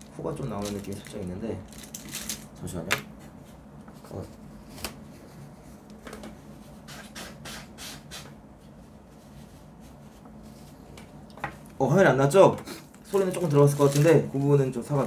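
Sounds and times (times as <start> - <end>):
soft rustling and handling: 3.1 - 6.8, 8.5 - 11.8, 12.8 - 15.0.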